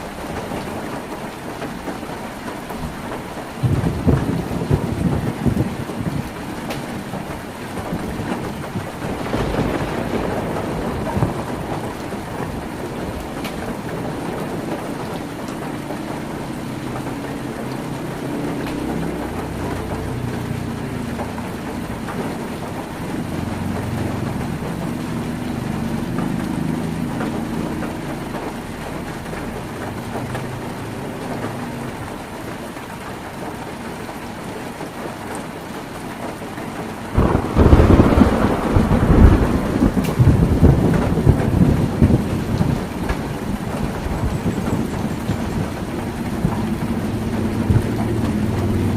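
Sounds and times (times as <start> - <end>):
heavy rain on tin roof: 0.0 - 48.9
rolling thunder: 3.6 - 28.6, 37.0 - 48.9.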